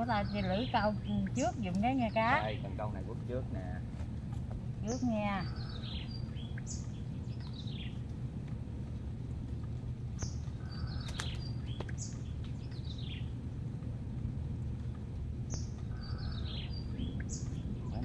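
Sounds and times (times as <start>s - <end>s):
low background rumble: 0.0s - 18.0s
songbird singing falling notes: 10.2s - 13.3s.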